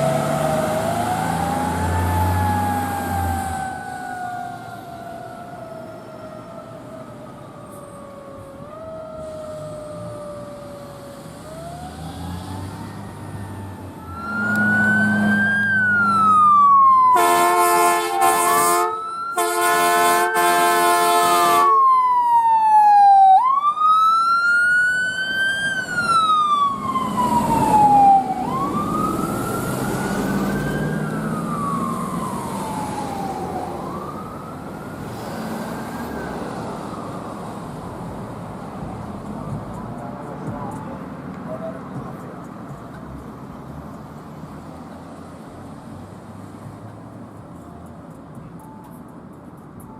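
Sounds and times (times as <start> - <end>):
siren wailing: 0.0 - 38.0
air horn blasts: 17.2 - 21.8.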